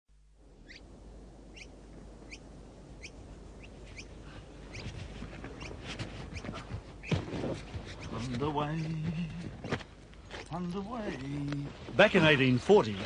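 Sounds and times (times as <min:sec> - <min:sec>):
outdoor background: 0:00.1 - 0:13.0
bird chirping: 0:00.6 - 0:07.3
soft low knocks or shuffling: 0:04.6 - 0:13.0.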